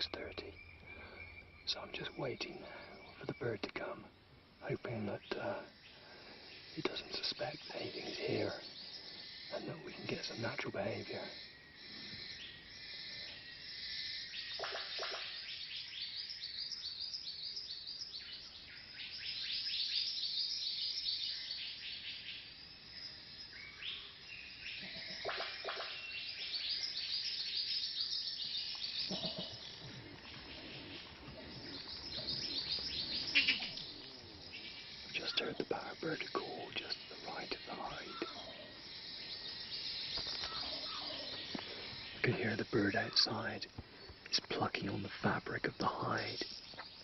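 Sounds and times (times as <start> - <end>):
birds chirping and calling: 0.0 - 47.0
loud bird call: 28.9 - 35.5, 40.1 - 42.0.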